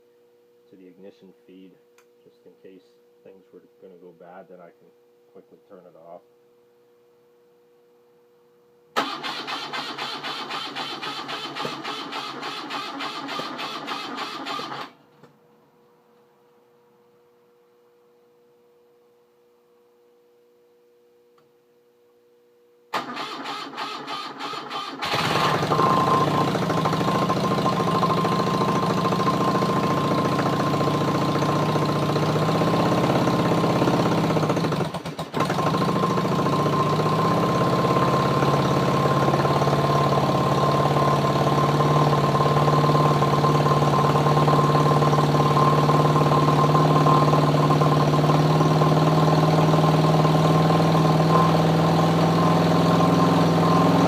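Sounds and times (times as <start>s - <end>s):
electric starter cranking: 9.0s - 15.0s, 23.0s - 38.4s
motorcycle engine running: 25.0s - 54.0s.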